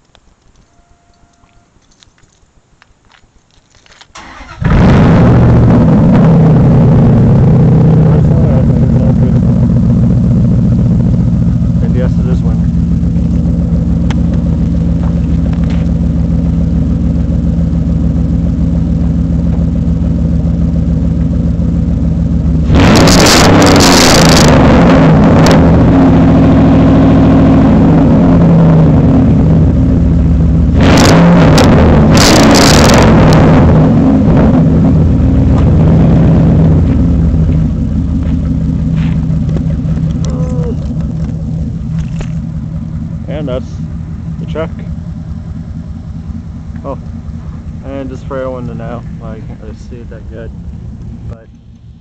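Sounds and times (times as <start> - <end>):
truck engine idling and revving: 3.5 - 52.0.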